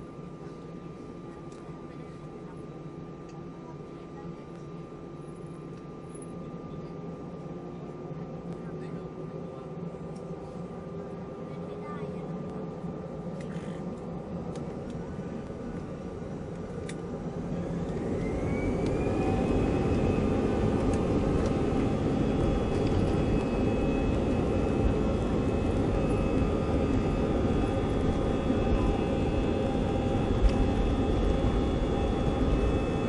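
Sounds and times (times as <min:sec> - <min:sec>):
jet engines spooling up: 0:13.3 - 0:33.0
rising engine whine: 0:13.9 - 0:33.0.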